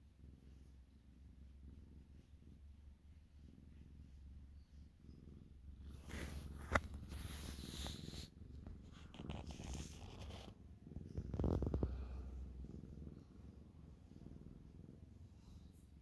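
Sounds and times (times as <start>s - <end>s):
kitten purring: 0.0s - 16.0s
rustling and brushing: 5.9s - 11.8s.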